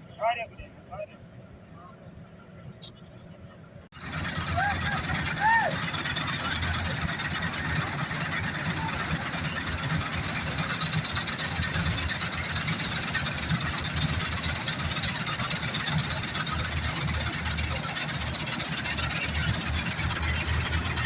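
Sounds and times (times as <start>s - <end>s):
combine harvester running: 2.2s - 21.0s.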